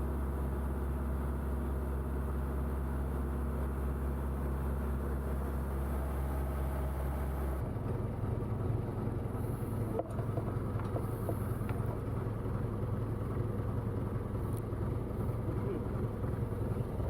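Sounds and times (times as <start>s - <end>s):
boat engine droning: 3.9s - 17.0s.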